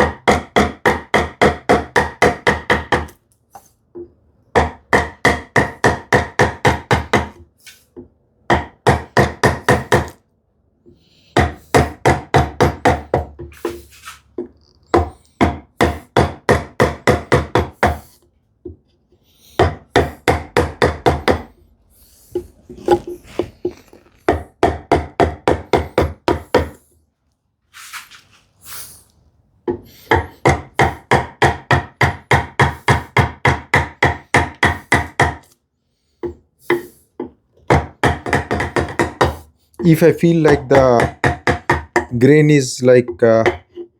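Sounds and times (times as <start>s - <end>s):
mallet striking chisel into wood: 0.0s - 3.2s, 4.5s - 7.4s, 8.5s - 10.2s, 11.4s - 13.8s, 14.9s - 18.0s, 19.6s - 21.5s, 24.3s - 26.8s, 29.7s - 35.6s, 37.7s - 42.2s, 43.2s - 43.8s.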